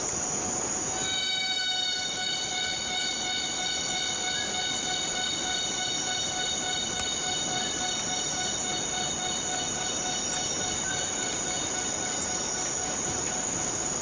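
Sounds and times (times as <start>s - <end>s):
jungle insects droning: 0.0s - 14.0s.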